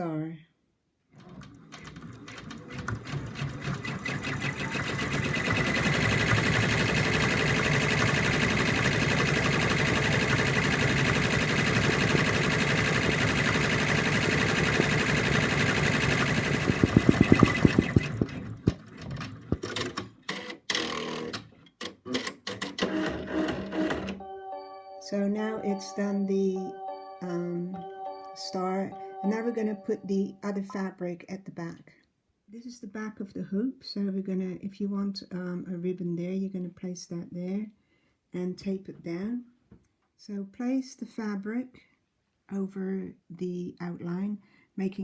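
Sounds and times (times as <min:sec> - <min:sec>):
embroidery machine stitching: 0:01.2 - 0:24.2.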